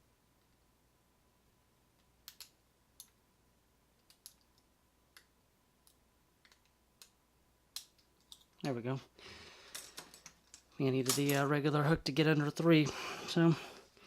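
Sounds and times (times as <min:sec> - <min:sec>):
faint metal clicks of lock picking: 0:04.0 - 0:07.2, 0:07.8 - 0:08.6.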